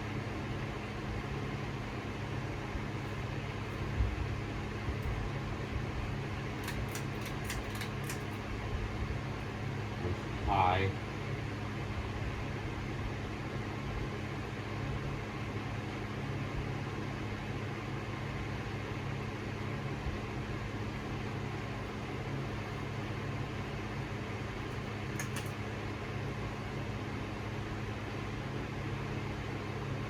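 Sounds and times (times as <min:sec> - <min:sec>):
ceiling fan motor hum: 0:00.0 - 0:30.0
short clicks: 0:25.1 - 0:25.6.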